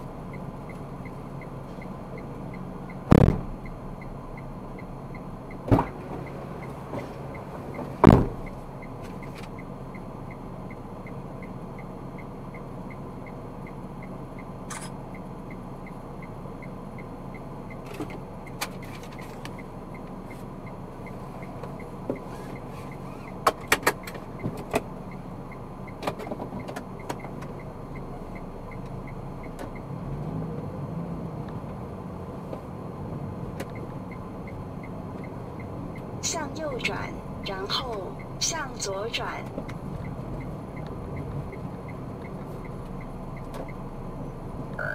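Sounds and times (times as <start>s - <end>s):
car road and engine noise: 0.0s - 44.9s
sharp clicks and knocks: 3.1s - 3.7s, 23.3s - 24.9s.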